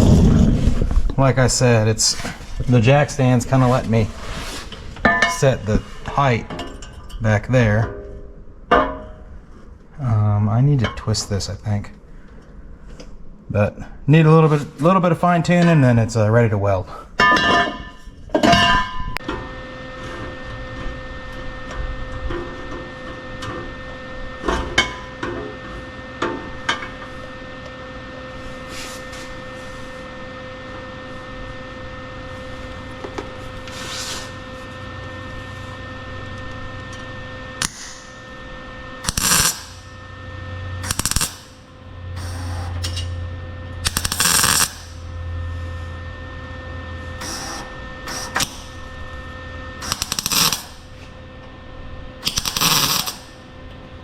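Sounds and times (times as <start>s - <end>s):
steady hum: 0.0s - 54.0s
crackling welding bursts: 37.6s - 38.3s, 39.0s - 40.0s, 40.8s - 42.7s, 43.8s - 45.1s, 47.2s - 48.9s, 49.8s - 51.0s, 52.2s - 53.5s.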